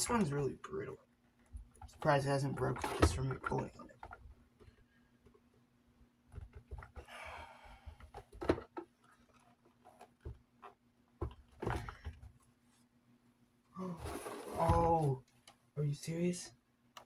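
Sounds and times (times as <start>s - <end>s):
scraping rub: 13.8s - 15.0s.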